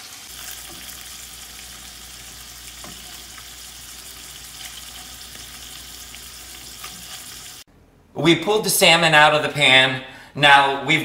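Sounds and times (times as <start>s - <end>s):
fish sizzling in oil: 0.0s - 7.7s.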